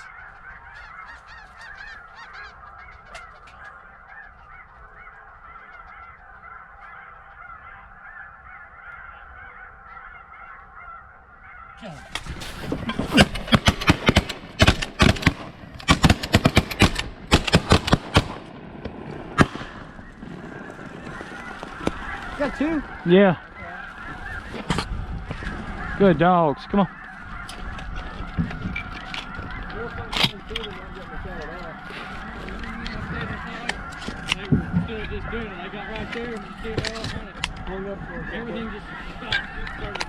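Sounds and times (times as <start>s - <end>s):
snow geese calling: 0.0s - 40.0s
shotgun fire: 13.1s - 18.6s.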